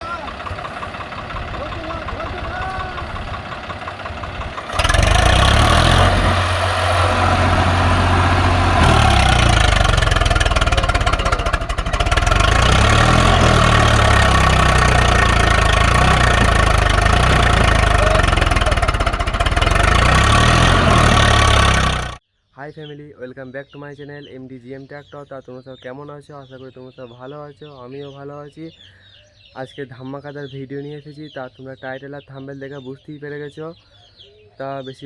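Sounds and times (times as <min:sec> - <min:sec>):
tractor diesel engine under load: 0:00.0 - 0:22.2.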